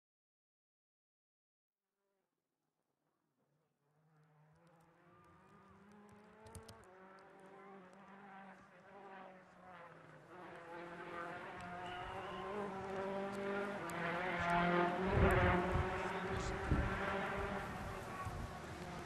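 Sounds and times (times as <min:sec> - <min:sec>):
rally car engine buzzing: 0:04.0 - 0:19.0.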